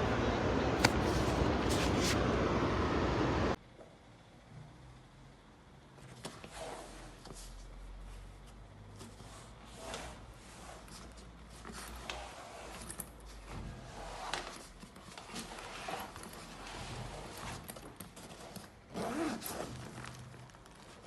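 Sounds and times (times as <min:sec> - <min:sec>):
zipper being pulled: 0:00.8 - 0:02.2, 0:13.9 - 0:21.0
bag scraping and rustling: 0:00.8 - 0:02.3, 0:09.8 - 0:21.0.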